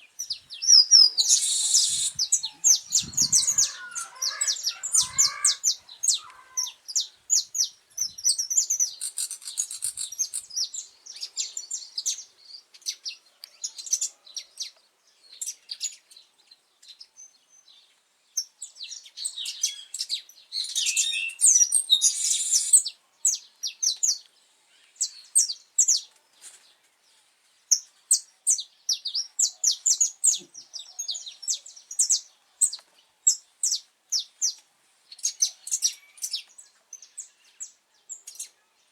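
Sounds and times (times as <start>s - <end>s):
finch singing high chirps: 0.2s - 13.0s
buzzy bird trill: 0.8s - 6.6s.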